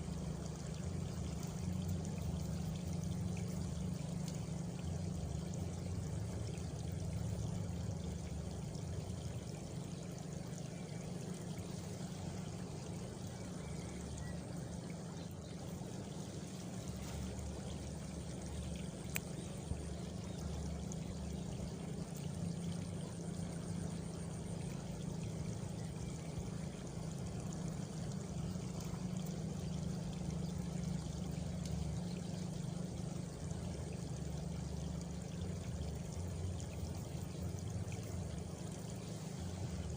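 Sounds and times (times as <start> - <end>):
flowing water rushing: 0.0 - 39.9
sharp tick: 19.0 - 19.4.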